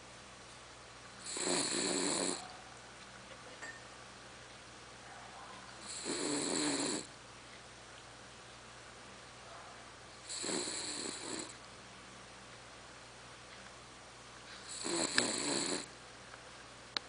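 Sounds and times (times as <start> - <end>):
dog snoring: 1.2 - 2.5, 5.8 - 7.1, 10.2 - 11.6, 14.6 - 15.9.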